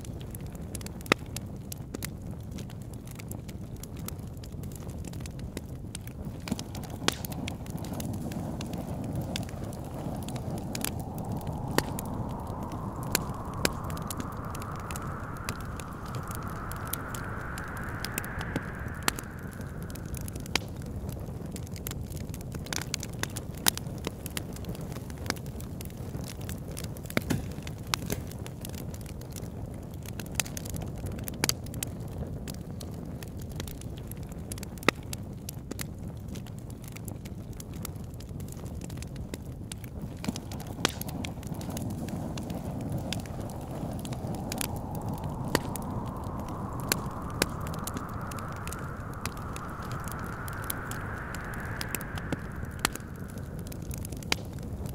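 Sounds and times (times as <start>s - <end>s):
fire crackling and popping: 0.0s - 28.3s, 38.1s - 54.9s
low wind rumble: 6.4s - 22.8s, 40.1s - 54.9s
wind whistling: 7.7s - 21.9s, 40.3s - 54.9s.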